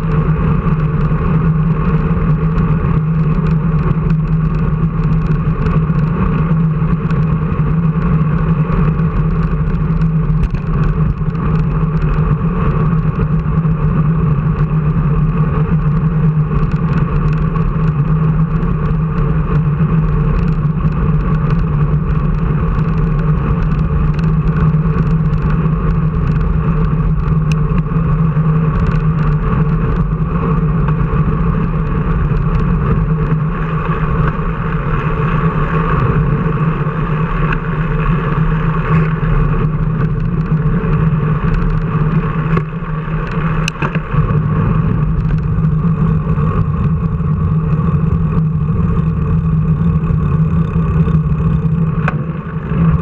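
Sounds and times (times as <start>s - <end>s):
road and wind noise: 0.0s - 53.0s
vehicle engine droning: 0.0s - 53.0s.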